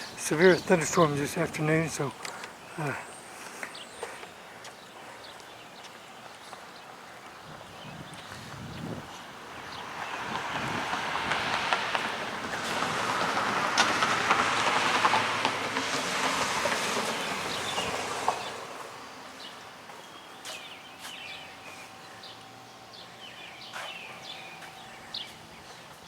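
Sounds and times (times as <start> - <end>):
birds chirping: 0.0 - 11.0, 17.0 - 26.0.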